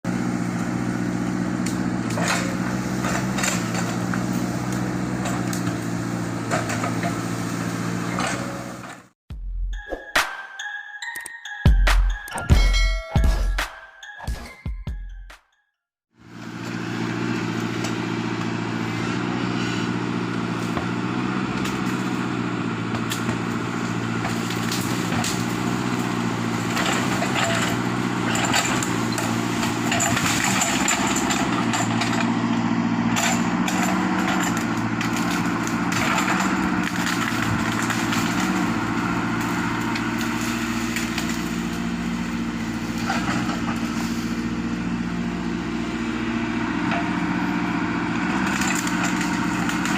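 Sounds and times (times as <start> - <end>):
excavator diesel engine running: 0.0 - 9.2, 16.1 - 49.9
wood cracking and crunching: 23.0 - 32.4, 33.2 - 44.4, 48.1 - 49.9.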